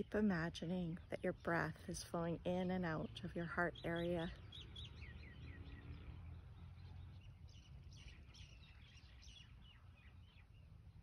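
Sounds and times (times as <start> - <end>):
low outdoor rumble: 0.0 - 11.0
faint bird chirps: 2.8 - 11.0.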